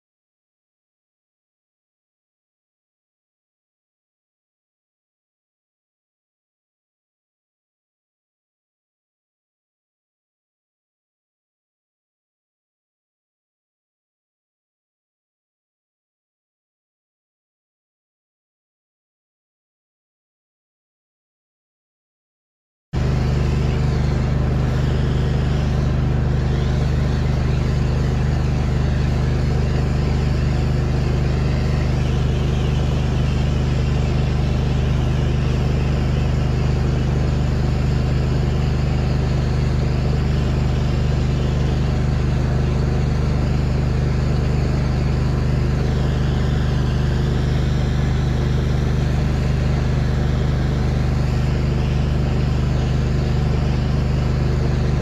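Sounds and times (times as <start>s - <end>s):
engine running: 23.0s - 55.0s.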